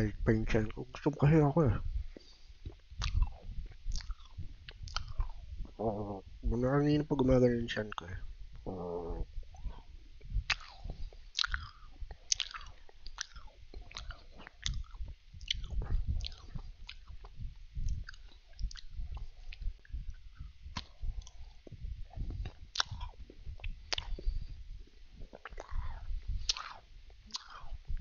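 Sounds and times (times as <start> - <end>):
low chewing rumble: 0.0 - 28.0
cookie crunching: 11.4 - 17.2.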